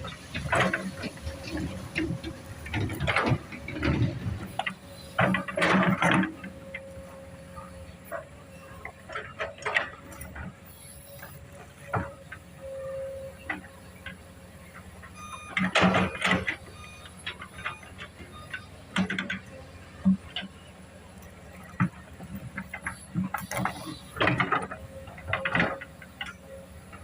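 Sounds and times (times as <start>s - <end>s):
excavator engine hum: 0.0s - 27.0s
metallic clanks and knocks: 0.1s - 6.9s, 13.4s - 20.6s, 21.6s - 27.0s.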